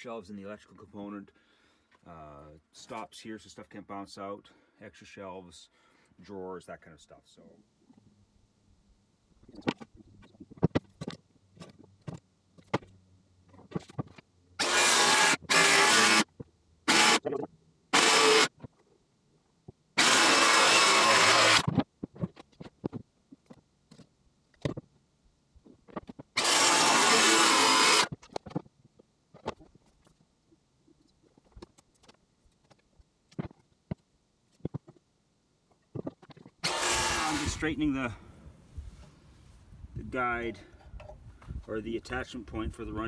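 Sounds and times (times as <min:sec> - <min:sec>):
power tool running: 0:14.6 - 0:16.2, 0:16.9 - 0:17.2, 0:18.0 - 0:18.5, 0:20.0 - 0:21.7, 0:26.4 - 0:28.1, 0:36.6 - 0:39.5.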